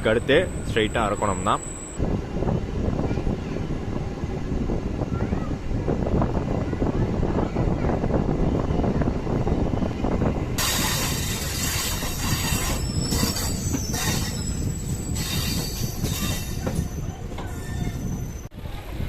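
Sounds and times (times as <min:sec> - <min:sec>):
low train rumble: 0:00.0 - 0:19.0
train wheels squealing: 0:00.3 - 0:02.0, 0:10.6 - 0:18.5.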